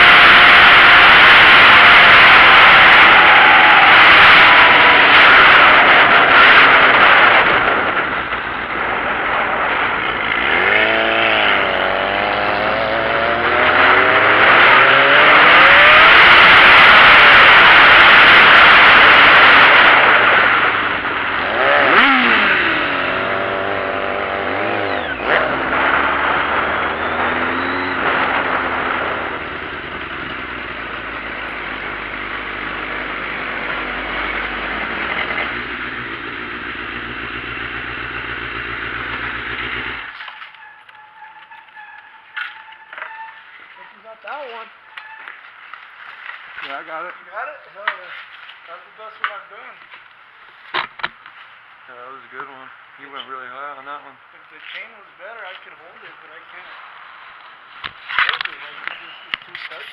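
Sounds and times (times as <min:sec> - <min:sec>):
loud rushing noise: 0:00.0 - 0:31.4
motorcycle engine revving: 0:00.0 - 0:44.1.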